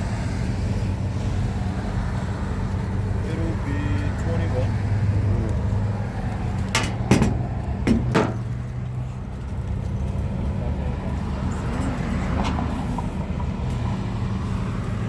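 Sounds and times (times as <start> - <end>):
low engine hum: 0.0 - 15.0
sharp knocks: 6.7 - 8.6.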